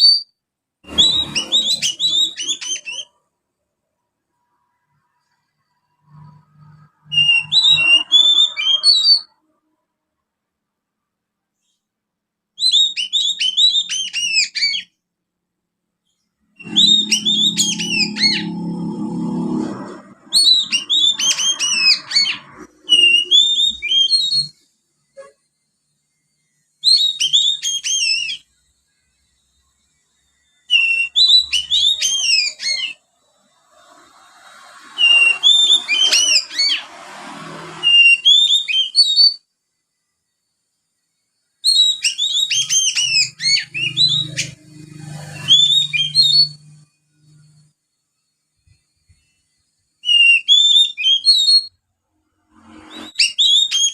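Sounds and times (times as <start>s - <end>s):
bird twittering high chirps: 0.0s - 3.2s, 6.0s - 9.4s, 12.6s - 15.0s, 16.1s - 24.6s, 26.8s - 28.5s, 30.1s - 37.2s, 37.8s - 39.4s, 41.6s - 47.7s, 50.0s - 51.8s, 52.6s - 53.9s.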